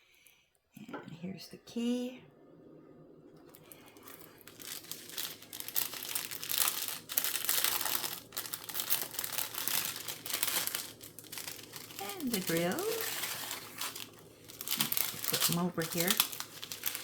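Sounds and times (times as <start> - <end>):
plastic packaging crinkling: 3.6 - 17.0.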